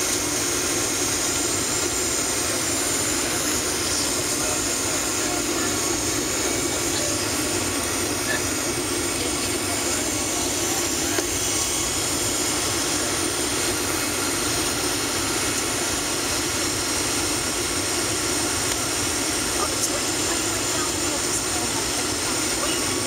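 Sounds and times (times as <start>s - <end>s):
jet airliner cabin noise: 0.0s - 23.0s.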